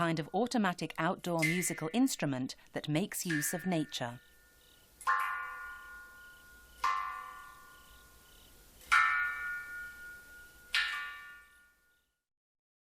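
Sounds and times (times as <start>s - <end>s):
water drops ringing in a jar: 1.4s - 2.2s, 3.2s - 11.7s.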